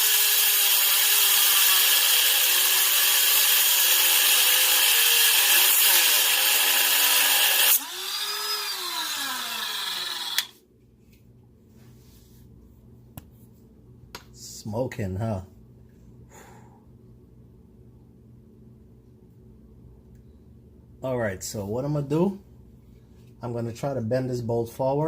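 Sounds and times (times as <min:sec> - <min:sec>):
rotary tool grinding metal: 0:00.0 - 0:10.5.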